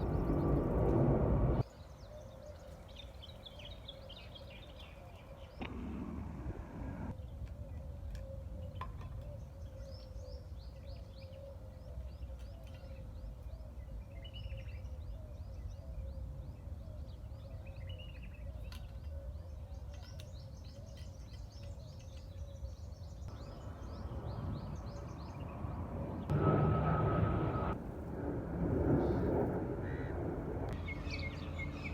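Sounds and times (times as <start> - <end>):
outdoor background rumble: 0.0 - 1.6, 5.6 - 7.2, 23.2 - 31.9
small birds chirping: 0.0 - 6.1, 7.1 - 26.3, 30.7 - 31.9.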